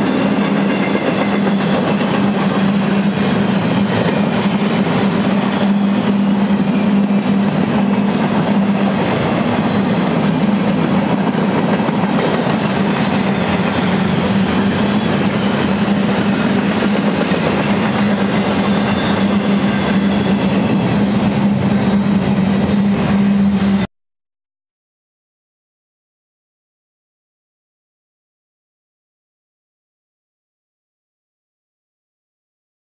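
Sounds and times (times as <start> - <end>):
train wheels on track: 0.0 - 23.9.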